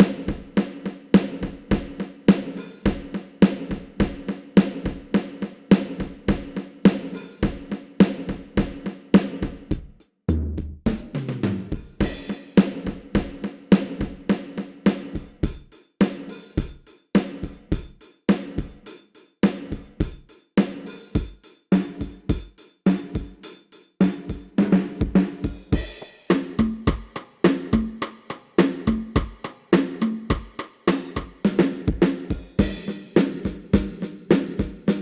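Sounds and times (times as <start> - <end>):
drum kit groove: 0.0 - 35.0.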